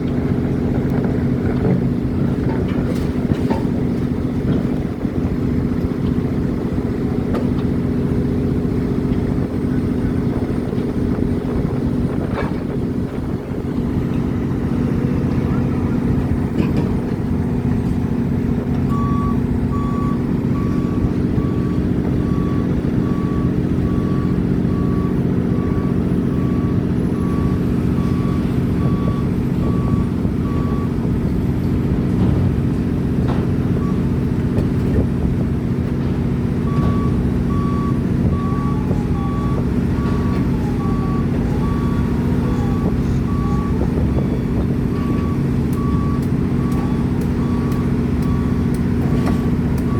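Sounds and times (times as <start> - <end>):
heavy diesel engine running: 0.0 - 49.9
reversing alarm beeping: 18.8 - 31.1, 36.6 - 49.9.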